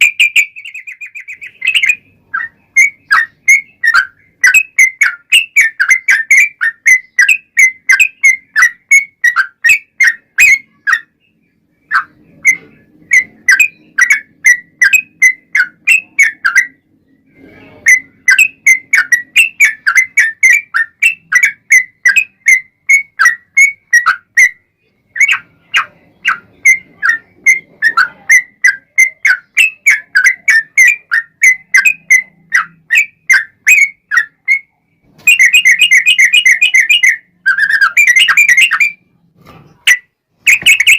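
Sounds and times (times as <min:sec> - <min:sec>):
bird singing whistled notes: 0:00.0 - 0:39.0, 0:39.8 - 0:40.9.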